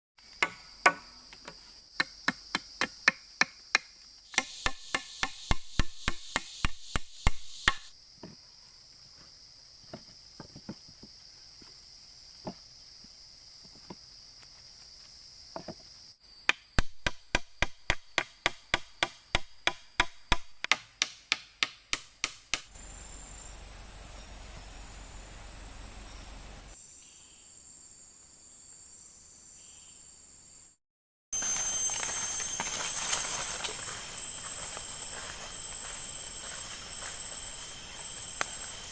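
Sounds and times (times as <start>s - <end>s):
high insect drone: 0.2s - 20.0s, 22.7s - 30.8s, 31.4s - 38.9s
blade chopping wood: 2.3s - 7.9s.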